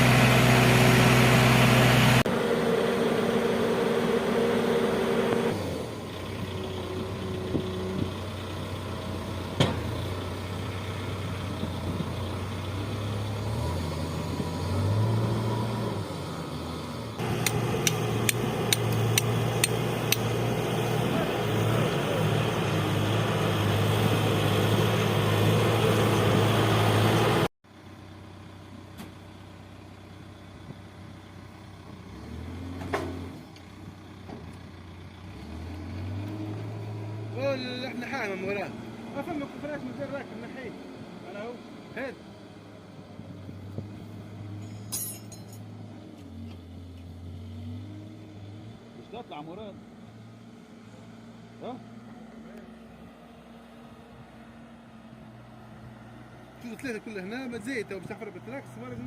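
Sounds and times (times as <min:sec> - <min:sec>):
diesel machine engine running: 0:00.0 - 0:15.1, 0:16.2 - 0:32.3
sharp metallic clicks: 0:17.4 - 0:20.3.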